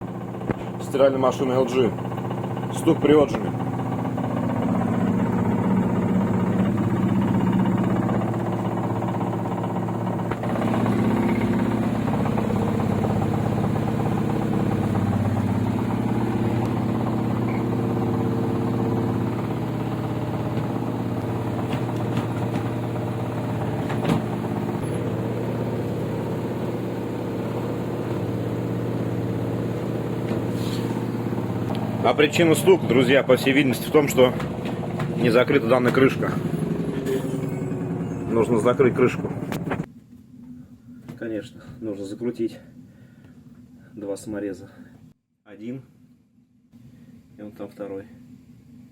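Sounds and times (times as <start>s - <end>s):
washing machine spinning: 0.0s - 43.8s
rapid knocking: 1.9s - 38.1s.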